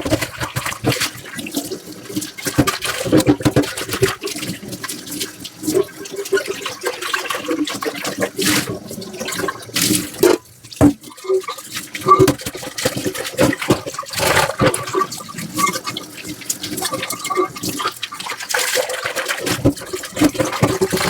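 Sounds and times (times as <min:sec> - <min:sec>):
running water in sink: 0:00.0 - 0:21.0
dishes clinking and knocking: 0:10.2 - 0:11.0, 0:12.1 - 0:15.1.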